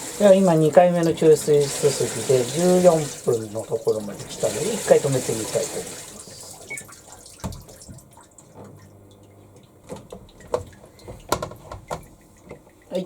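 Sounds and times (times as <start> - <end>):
water dripping in washing machine tub: 0.0 - 13.0.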